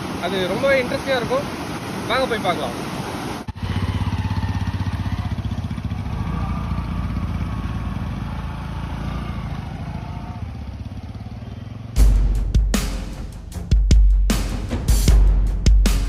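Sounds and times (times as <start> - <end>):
motorcycle engine running: 3.5 - 12.9
loud music with heavy drums: 12.0 - 16.0.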